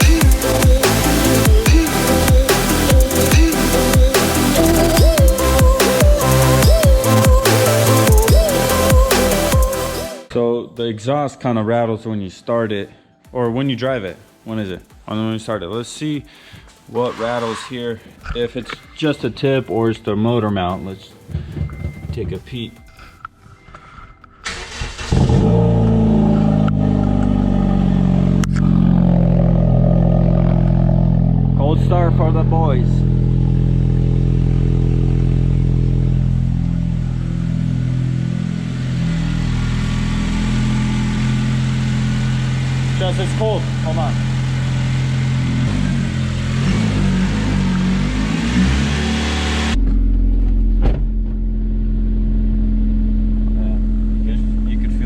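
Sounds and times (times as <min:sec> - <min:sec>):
car engine idling: 0:00.0 - 0:10.2, 0:24.5 - 0:55.0.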